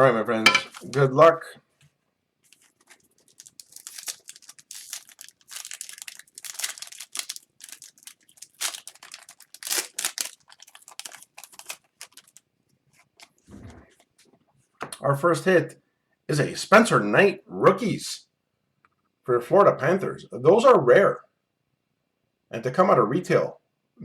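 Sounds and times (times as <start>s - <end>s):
cards being handled: 0.6s - 1.0s
wrappers crinkling and tearing: 0.7s - 1.1s, 2.4s - 13.4s.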